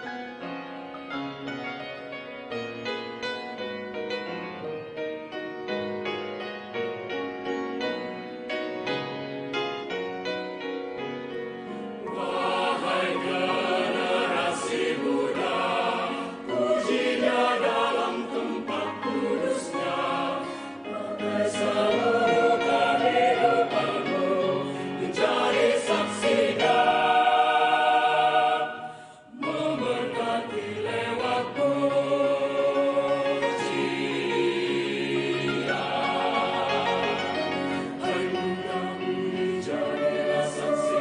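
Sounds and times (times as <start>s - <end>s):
choir singing gospel: 11.9s - 41.0s.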